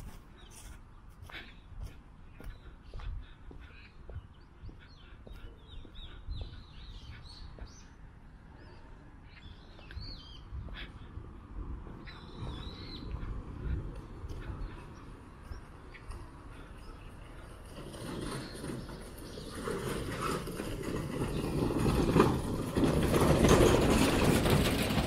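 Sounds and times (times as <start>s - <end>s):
birds chirping high calls: 0.2s - 11.2s, 12.0s - 20.5s.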